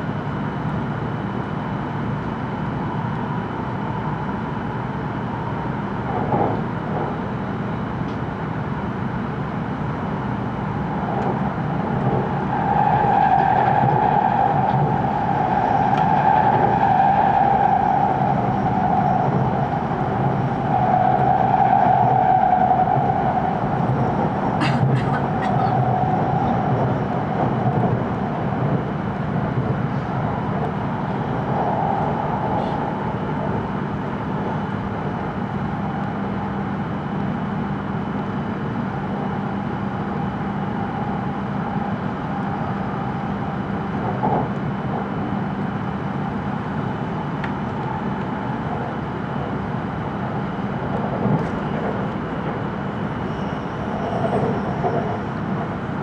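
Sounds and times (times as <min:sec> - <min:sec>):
train wheels rumbling: 0:10.5 - 0:37.4, 0:40.8 - 0:56.0.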